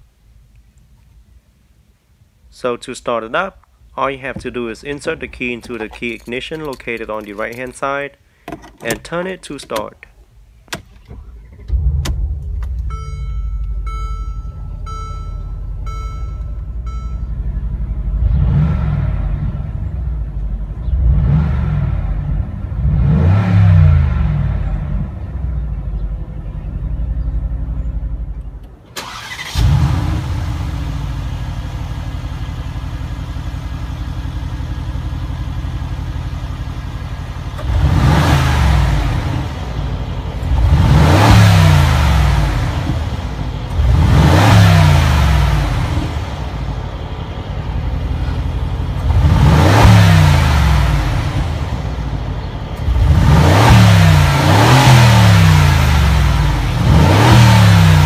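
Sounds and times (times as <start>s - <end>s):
car engine starting and idling: 3.6s - 58.0s
exhaust idling: 3.7s - 23.1s, 23.8s - 58.0s
engine revving: 11.6s - 13.0s, 17.6s - 25.6s, 29.0s - 32.4s, 35.6s - 58.0s
dashboard chime: 12.8s - 17.6s.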